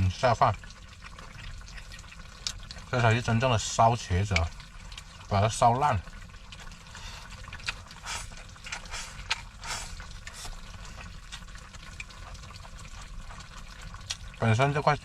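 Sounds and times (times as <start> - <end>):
wet mouth sounds: 6.6 - 14.4.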